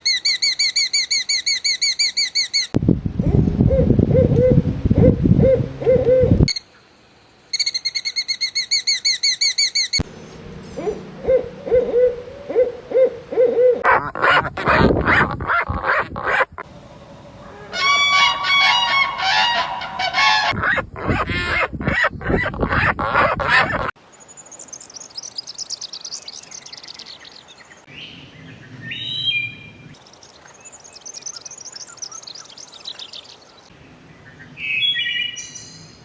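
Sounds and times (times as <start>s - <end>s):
high-pitched bird calls: 0.0s - 2.8s, 7.5s - 16.6s, 17.7s - 24.0s
low hoot-like bird notes: 3.2s - 6.5s, 10.0s - 16.4s.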